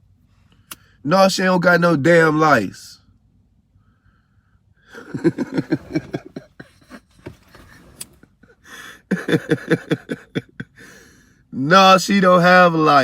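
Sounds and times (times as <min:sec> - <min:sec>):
man laughing: 0:04.9 - 0:11.0.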